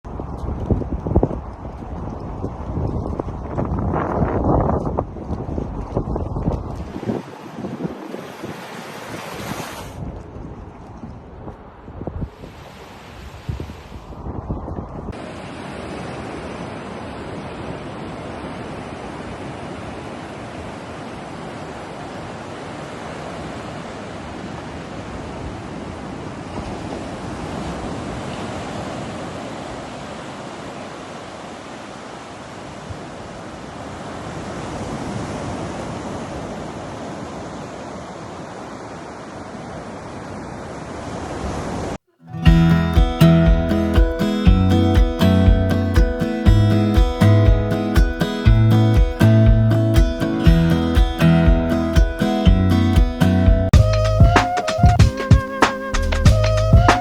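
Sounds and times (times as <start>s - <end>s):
wind: 0.0s - 57.0s
ocean waves washing in: 0.1s - 56.0s
strummed acoustic guitar music: 42.2s - 57.0s.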